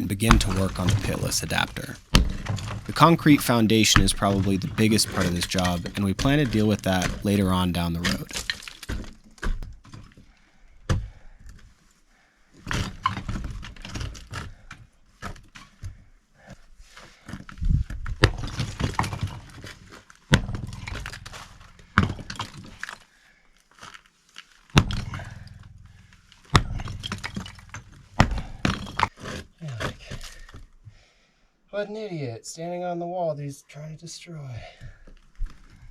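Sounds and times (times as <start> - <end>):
sledgehammer striking block wall: 0.2 - 3.4, 20.3 - 22.4, 24.8 - 29.1
blocks breaking and rubble tumbling: 0.2 - 10.2, 18.0 - 23.0, 26.4 - 30.6.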